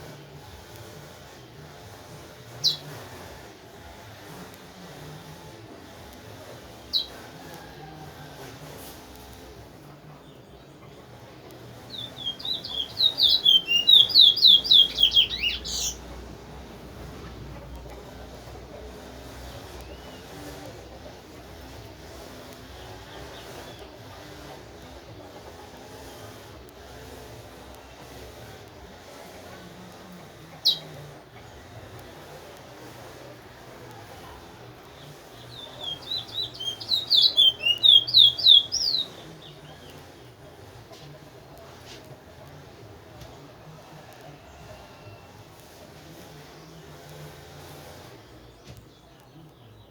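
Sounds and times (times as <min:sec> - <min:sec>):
finch singing whistled notes: 0:11.9 - 0:16.0, 0:30.6 - 0:30.9, 0:35.0 - 0:40.0.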